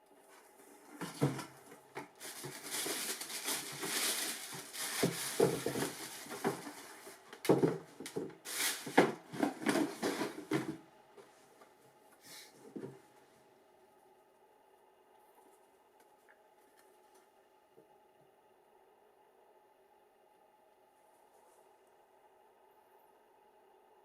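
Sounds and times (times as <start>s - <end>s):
packaging rustling and crinkling: 1.1s - 10.7s.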